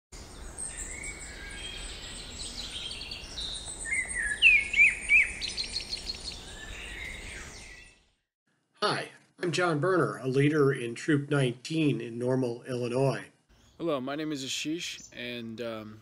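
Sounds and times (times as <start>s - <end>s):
wild birds singing: 0.2s - 8.3s, 12.5s - 16.0s
outdoor hiss: 13.5s - 16.0s.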